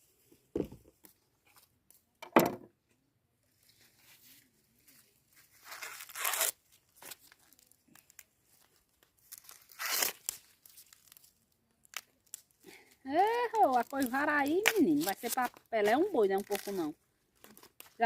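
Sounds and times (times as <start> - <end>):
corn husks ripping: 5.6 - 8.2, 9.2 - 12.6, 13.2 - 18.0.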